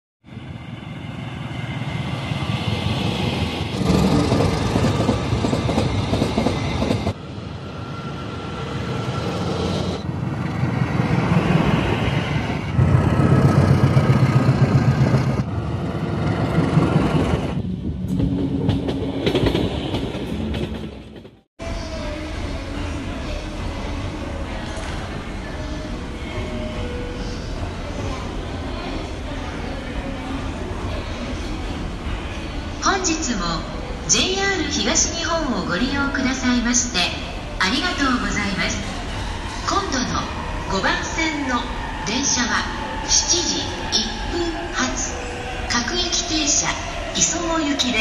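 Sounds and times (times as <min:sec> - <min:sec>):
diesel train engines running: 0:00.3 - 0:19.6.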